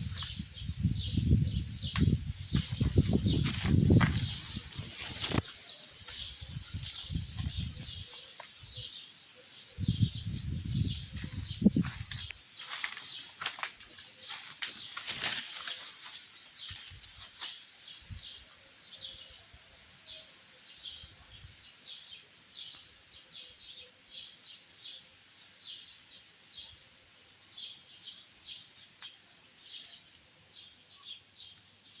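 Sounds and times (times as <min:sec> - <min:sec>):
small birds chirping: 0:00.0 - 0:32.0
rustling: 0:02.0 - 0:08.6, 0:11.0 - 0:17.7.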